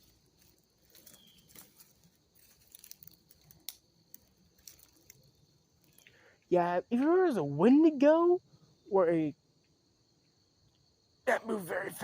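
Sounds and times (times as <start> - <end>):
twigs crackling underfoot: 0.0 - 6.5.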